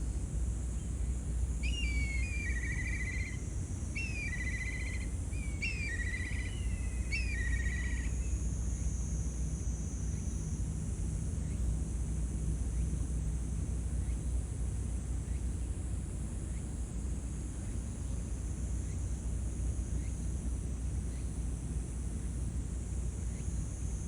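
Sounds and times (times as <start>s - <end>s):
songbird singing: 0.8s - 8.9s.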